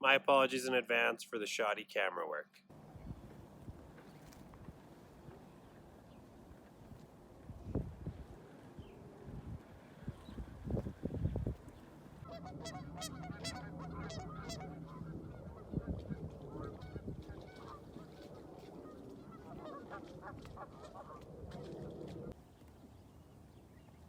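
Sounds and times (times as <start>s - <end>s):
geese honking: 12.2s - 22.3s.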